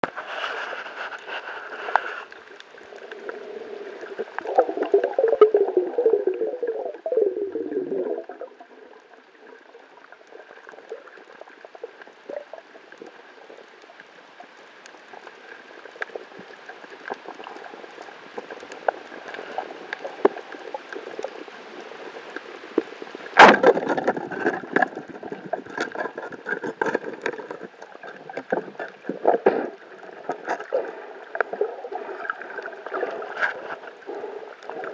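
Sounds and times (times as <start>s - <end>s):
small clicks and splashes: 0.0s - 34.9s
water sloshing and gurgling: 0.0s - 34.9s.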